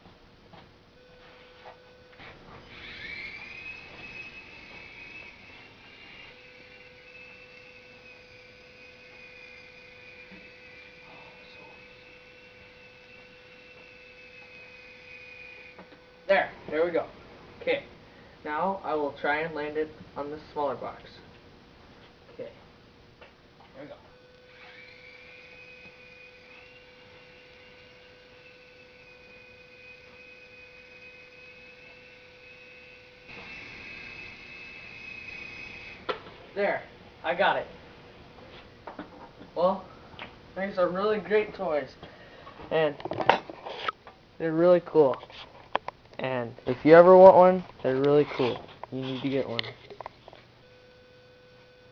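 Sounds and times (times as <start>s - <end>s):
faint steady hum: 0.0s - 51.9s
toy helicopter motors whining: 2.2s - 16.0s, 23.8s - 37.5s.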